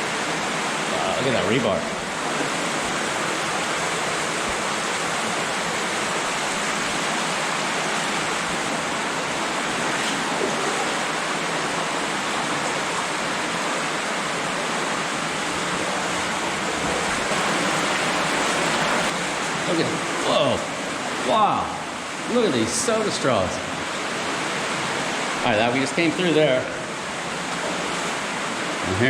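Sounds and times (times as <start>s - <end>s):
water rushing through a tunnel: 0.0s - 29.0s.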